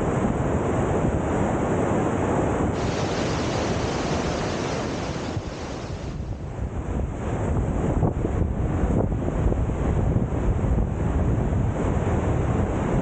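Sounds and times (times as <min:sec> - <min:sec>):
waterfall rushing: 0:02.8 - 0:06.4
wind buffeting microphone: 0:02.8 - 0:13.0.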